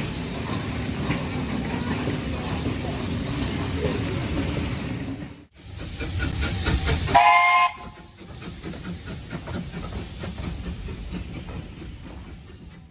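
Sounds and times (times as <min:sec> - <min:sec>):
locomotive running rumble: 0:00.0 - 0:12.9
steam hissing: 0:05.5 - 0:12.9
locomotive exhaust beats: 0:05.6 - 0:12.9.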